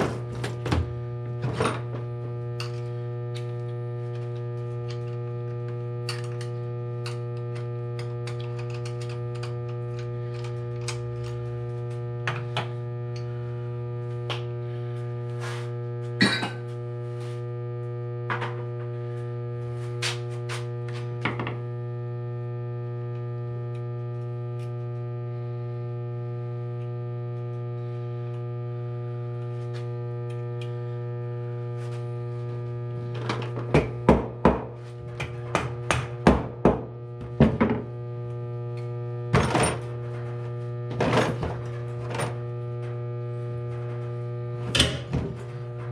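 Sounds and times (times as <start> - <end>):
steady electrical hum: 0.0 - 45.9.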